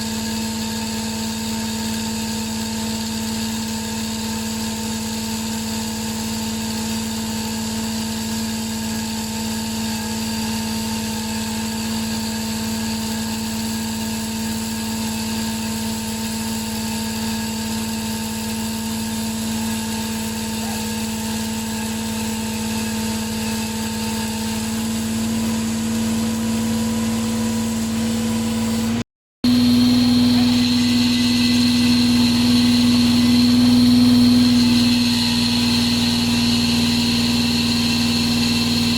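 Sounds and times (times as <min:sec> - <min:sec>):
hydraulic chain saw droning: 0:00.0 - 0:38.9
high whine: 0:21.9 - 0:38.9.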